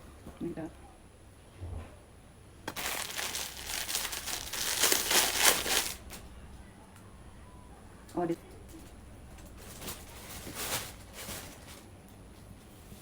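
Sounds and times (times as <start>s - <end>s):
packaging crinkling: 2.7s - 6.2s.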